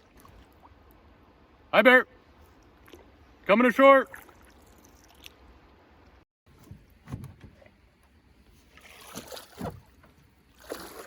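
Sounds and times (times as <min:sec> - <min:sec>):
water sloshing: 0:00.0 - 0:01.2, 0:04.0 - 0:05.8, 0:08.5 - 0:11.0.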